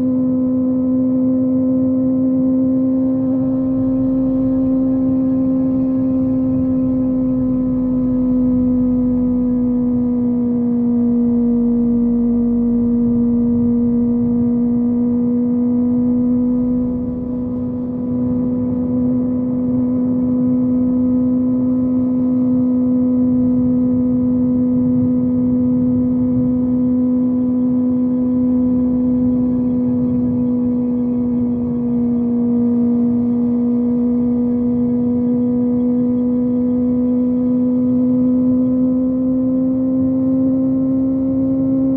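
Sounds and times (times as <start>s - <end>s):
motorcycle engine cruising: 0.0s - 41.9s.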